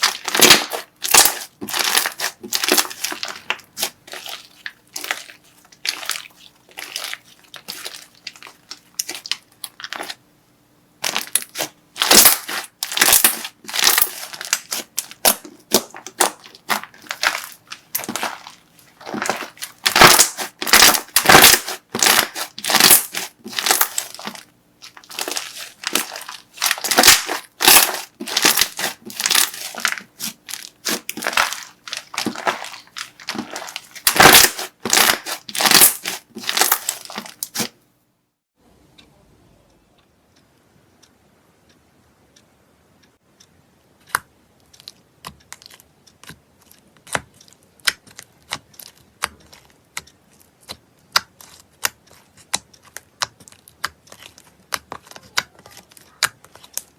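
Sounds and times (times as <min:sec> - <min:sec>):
crunchy slime squeezed by hand: 0:00.0 - 0:10.2, 0:11.0 - 0:37.7.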